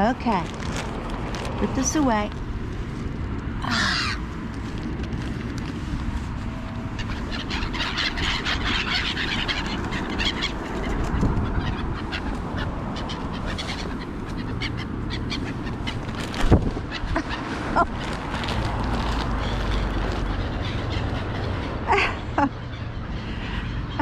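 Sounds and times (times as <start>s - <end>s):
birds chirping and calling: 3.6s - 4.3s, 6.7s - 24.0s.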